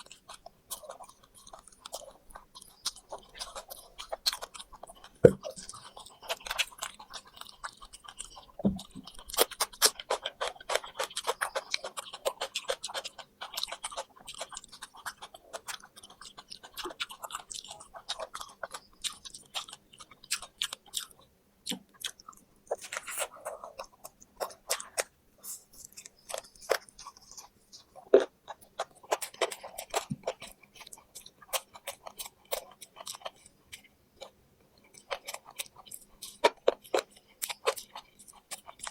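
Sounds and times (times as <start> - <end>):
chewing crisp fried meat: 0.0 - 38.9.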